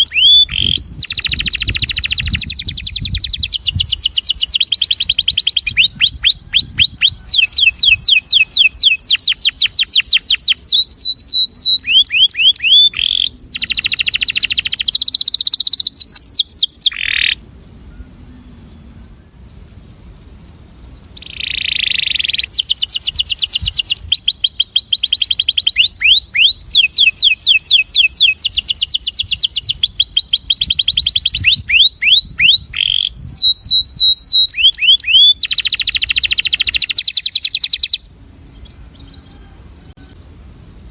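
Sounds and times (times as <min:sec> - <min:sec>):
canary singing trills: 0:00.0 - 0:40.9
harsh buzzy bird phrase: 0:16.8 - 0:17.4.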